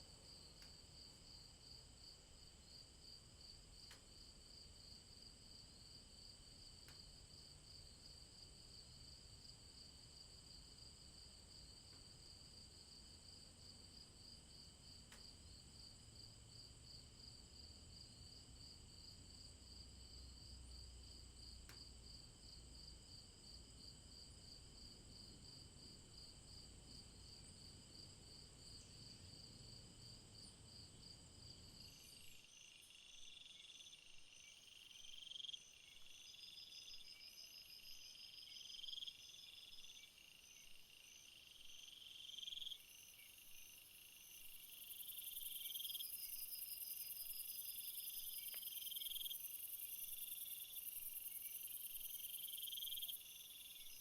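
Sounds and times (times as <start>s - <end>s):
high insect chirp: 23.4s - 54.0s
insect call: 24.5s - 54.0s
crickets trilling: 31.8s - 54.0s.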